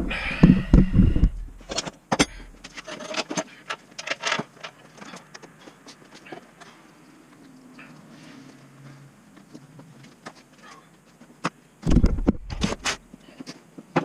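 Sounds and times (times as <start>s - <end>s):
tools and metal parts clattering: 1.6s - 6.9s.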